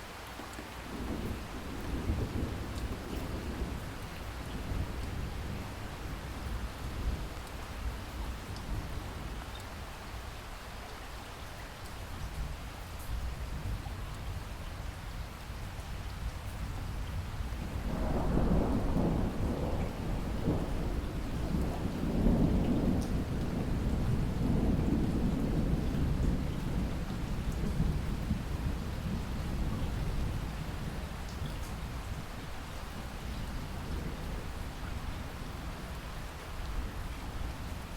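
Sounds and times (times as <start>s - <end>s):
steady rain: 0.0s - 37.9s
thunder rolling: 17.9s - 31.0s.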